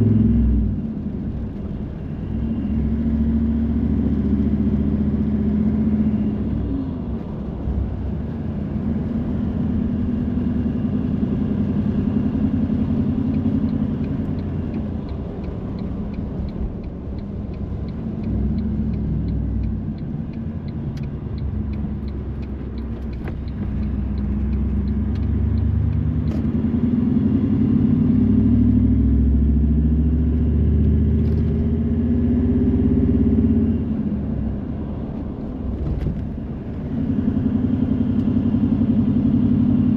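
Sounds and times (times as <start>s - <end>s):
car engine accelerating: 0.0s - 39.9s
road noise inside car: 0.0s - 39.9s
light regular ticking: 13.2s - 26.1s.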